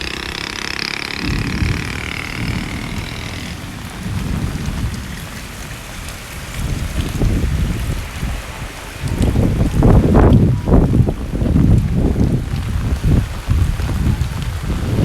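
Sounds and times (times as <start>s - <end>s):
high wavering drone: 0.0s - 4.0s
heavy rain falling: 0.0s - 15.0s
low rumbling surges: 0.0s - 15.0s.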